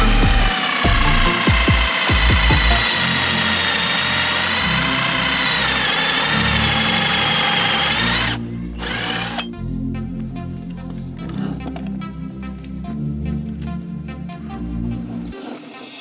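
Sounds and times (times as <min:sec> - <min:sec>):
background music with beat: 0:00.0 - 0:02.9
angle grinder whining: 0:00.0 - 0:09.5.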